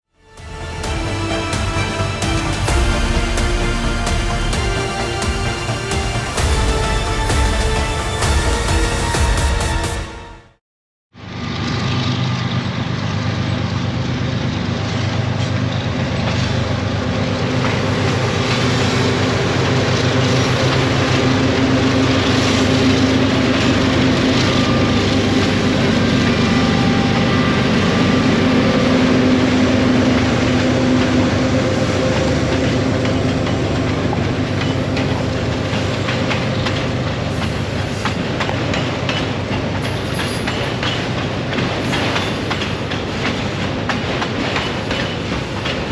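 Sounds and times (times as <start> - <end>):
train rumbling past: 0.2 - 10.6, 11.2 - 45.9
wheels clicking over rail joints: 32.1 - 45.9.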